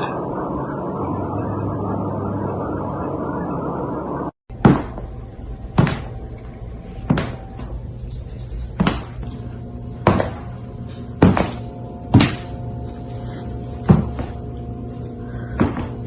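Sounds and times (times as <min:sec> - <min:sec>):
steady humming: 0:00.0 - 0:16.0.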